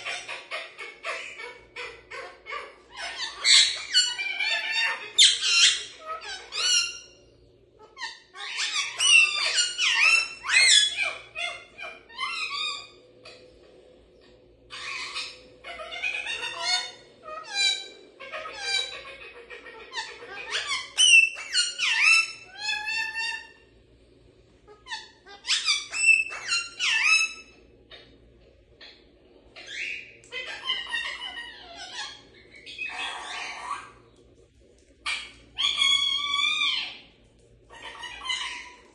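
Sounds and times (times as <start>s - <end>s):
parrots chattering and squawking: 0.0s - 38.9s.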